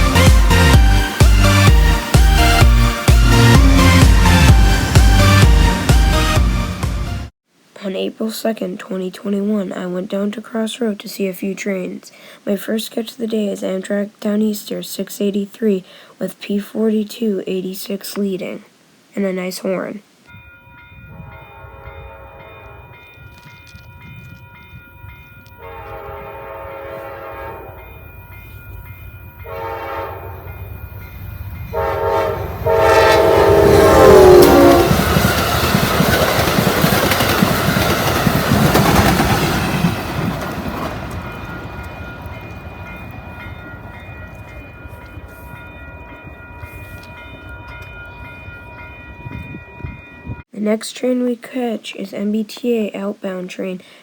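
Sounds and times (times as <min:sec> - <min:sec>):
locomotive horn blasts: 0:00.0 - 0:06.9, 0:21.1 - 0:22.9, 0:25.6 - 0:27.9, 0:29.4 - 0:30.4, 0:31.7 - 0:35.2.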